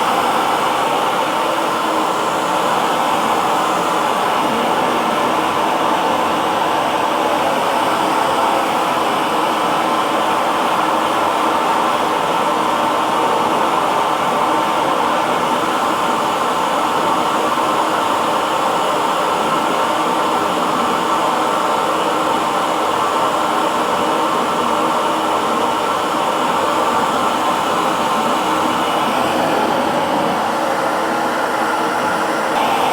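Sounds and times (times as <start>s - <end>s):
hair dryer blowing: 20.0s - 32.9s.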